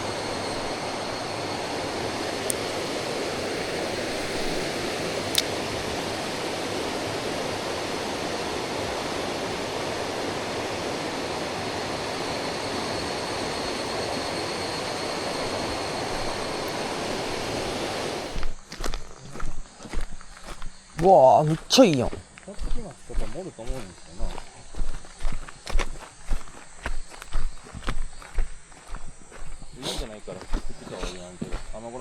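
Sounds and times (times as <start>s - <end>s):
faint high steady tone: 0.0s - 18.6s.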